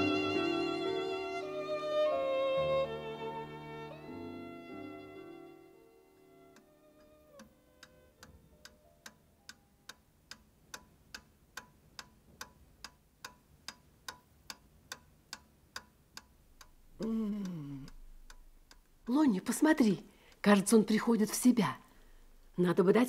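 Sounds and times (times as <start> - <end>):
violin music: 0.0 - 8.3
clock ticking: 6.5 - 23.0.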